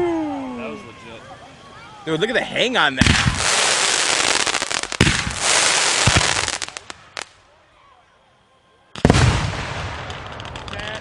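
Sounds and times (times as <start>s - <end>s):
fireworks crackling: 0.0s - 7.9s, 8.8s - 11.0s
fireworks bangs: 2.5s - 7.4s, 8.9s - 11.0s.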